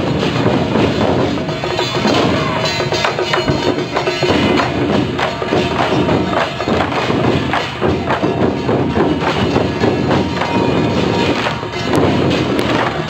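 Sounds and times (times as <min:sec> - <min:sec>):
loud percussion music: 0:00.0 - 0:13.0
ringing tones: 0:01.2 - 0:07.4.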